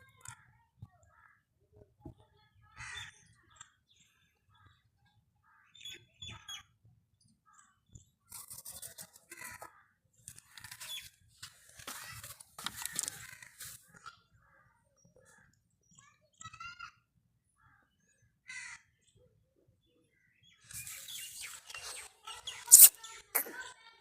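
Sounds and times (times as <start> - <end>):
rasping caw-like bird calls: 2.7 - 3.3, 11.9 - 13.8, 18.4 - 19.0.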